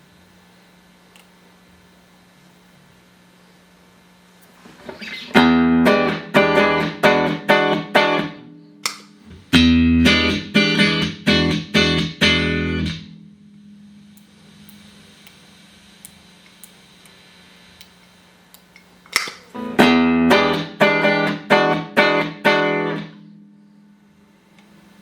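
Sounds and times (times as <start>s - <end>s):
low amp hum: 0.0s - 25.0s
clean electric guitar chords: 5.0s - 15.9s, 19.5s - 24.8s.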